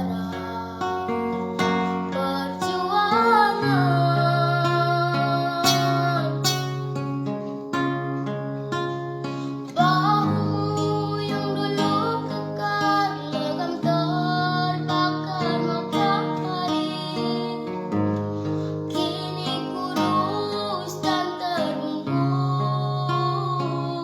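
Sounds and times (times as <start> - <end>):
person singing: 0.0 - 6.9, 9.6 - 17.9, 18.9 - 24.0
plucked acoustic guitar: 0.0 - 24.0.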